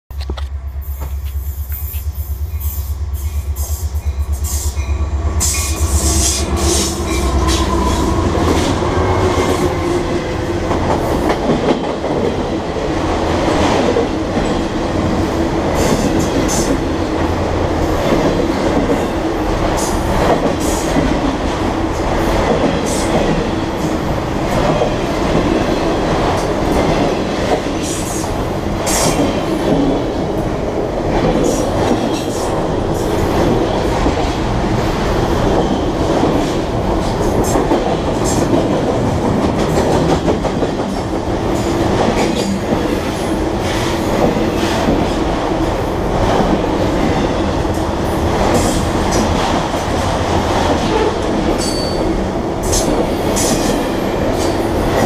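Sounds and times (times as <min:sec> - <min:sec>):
diesel locomotive throb: 0:00.3 - 0:14.1.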